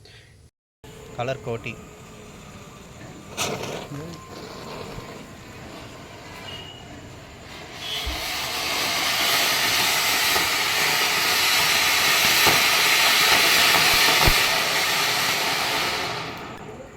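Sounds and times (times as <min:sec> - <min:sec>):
firework fountain hissing: 0:00.9 - 0:16.9
faint pops: 0:12.2 - 0:14.7.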